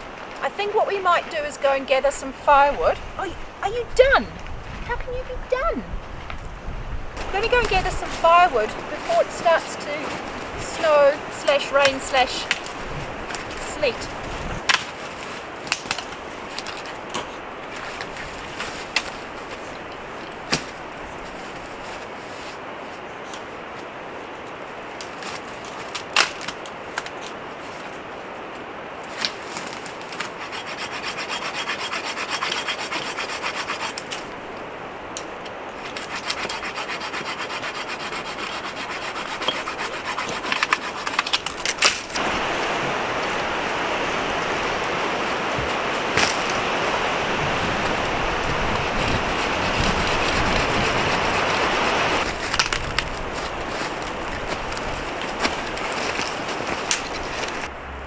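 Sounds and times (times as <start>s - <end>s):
wind rushing: 0.0s - 14.7s, 42.2s - 55.9s
wind and rain rushing: 0.0s - 58.0s
hand saw cutting wood: 7.2s - 16.0s, 29.2s - 34.4s, 35.8s - 42.5s, 44.4s - 57.7s
wood snapping: 11.4s - 13.9s, 14.6s - 20.9s, 25.0s - 28.0s, 29.0s - 57.7s.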